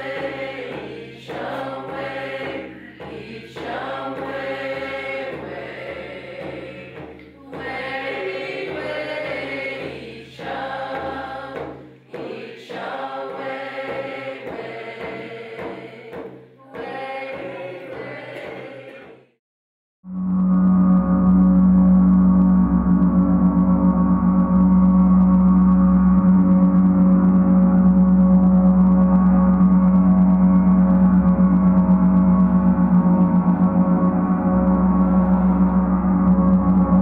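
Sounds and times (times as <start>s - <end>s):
steady low drone: 20.1s - 37.0s.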